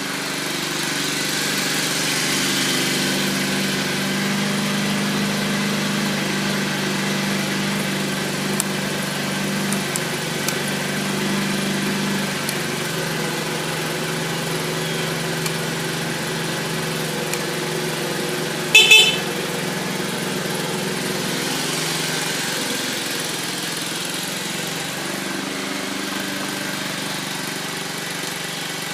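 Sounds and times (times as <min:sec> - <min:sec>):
moped engine idling: 0:00.0 - 0:28.9
horn beep: 0:18.8 - 0:19.5.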